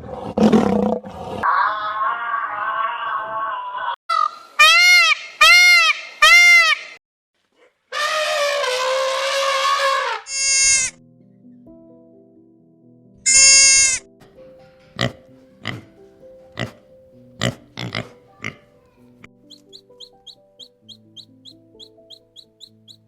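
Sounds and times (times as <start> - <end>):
animal cries: 1.4 - 6.8, 7.9 - 11.0, 13.3 - 14.0.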